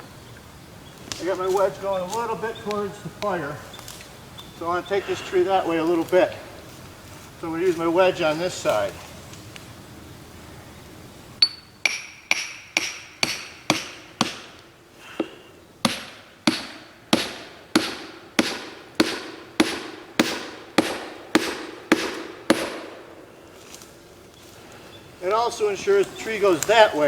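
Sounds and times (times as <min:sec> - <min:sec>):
hammer striking wedge: 0:11.4 - 0:14.6, 0:15.2 - 0:22.9.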